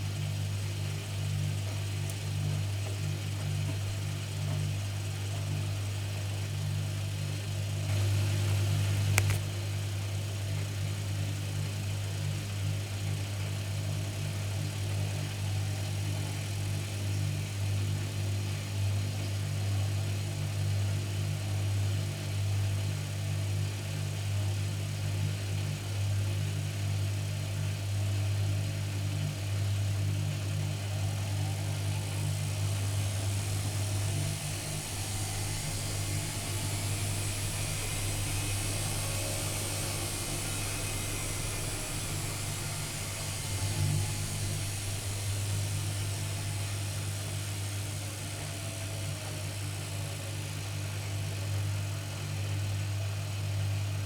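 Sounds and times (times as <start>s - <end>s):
washing machine humming: 0.0s - 9.8s, 29.3s - 52.9s
hiss: 7.8s - 9.4s, 30.3s - 52.0s.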